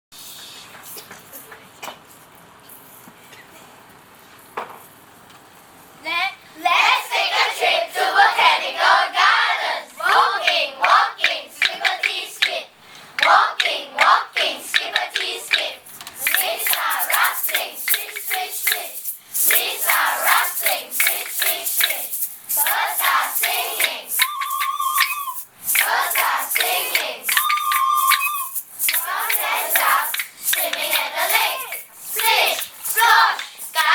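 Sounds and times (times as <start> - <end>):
children making chirps and whistles: 24.2 - 25.5, 27.3 - 28.7
held whistle-like tone: 24.2 - 25.5, 27.3 - 28.7.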